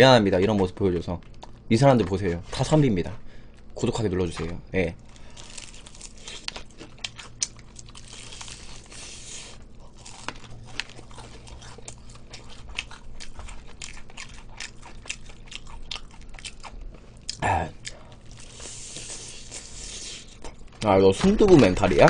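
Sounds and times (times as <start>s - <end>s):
crunching and chewing fried chicken: 0.1s - 22.0s.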